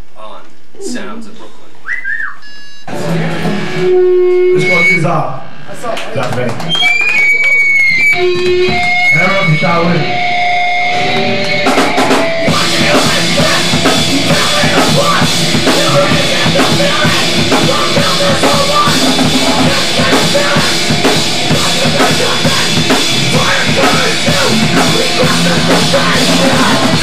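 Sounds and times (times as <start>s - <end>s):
bass guitar: 2.4s - 5.7s, 6.5s - 27.0s
distorted electric guitar: 2.9s - 5.8s, 6.4s - 27.0s
fast drum beat: 11.2s - 27.0s.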